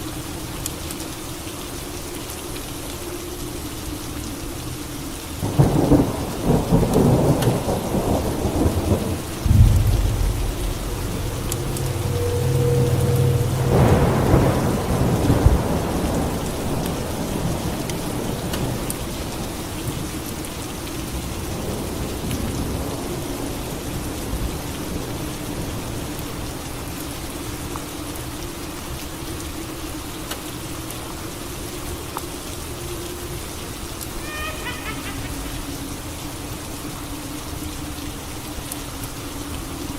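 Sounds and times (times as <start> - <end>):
steady rain: 0.0 - 39.9
thunderclap rumbling: 5.4 - 18.8.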